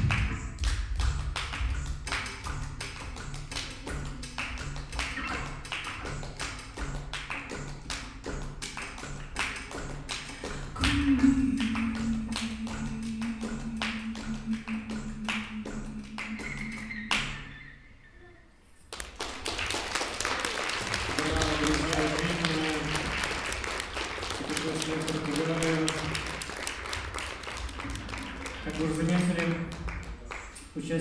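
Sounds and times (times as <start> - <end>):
repeating low bass line: 0.0 - 2.8, 10.6 - 17.7
ukulele: 0.0 - 17.4
cajon rhythm: 0.0 - 17.5, 19.0 - 31.0
long low held note: 10.8 - 18.0.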